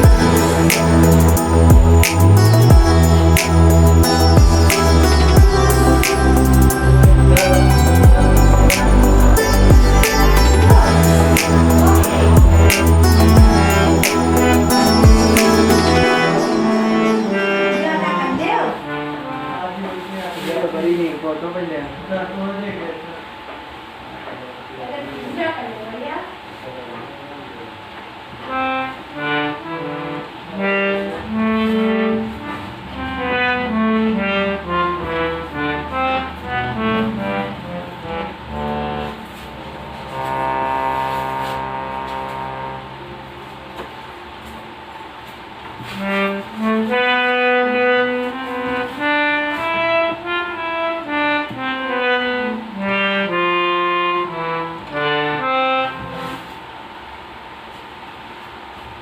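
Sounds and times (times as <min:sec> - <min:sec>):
harmonium melody: 0:00.0 - 0:19.5
sustained low harmonium note: 0:00.0 - 0:19.8, 0:31.3 - 0:44.7.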